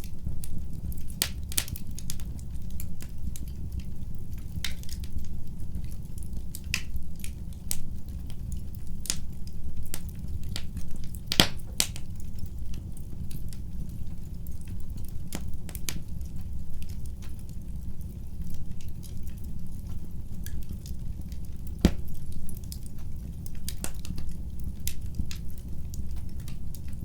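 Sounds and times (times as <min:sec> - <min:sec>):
low rumble of flames: 0:00.0 - 0:27.0
wood fire crackling and popping: 0:00.0 - 0:27.0.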